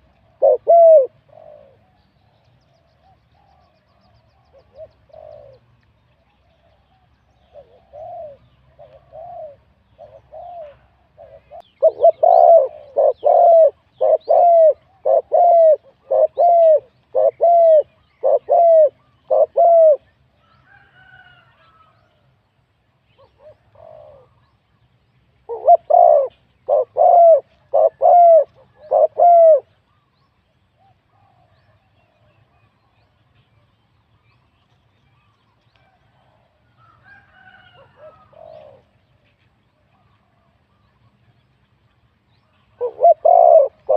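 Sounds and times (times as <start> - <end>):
dove cooing: 0.0 - 5.8, 6.5 - 20.1, 23.1 - 24.6, 25.4 - 30.1, 35.8 - 39.2, 42.5 - 43.9.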